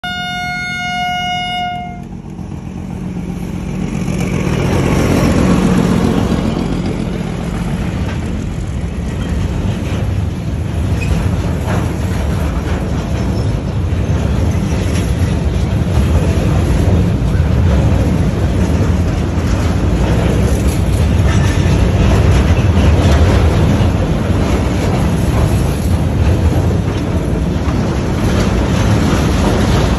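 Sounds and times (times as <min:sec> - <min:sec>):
freight train rumbling past: 0:00.0 - 0:29.9.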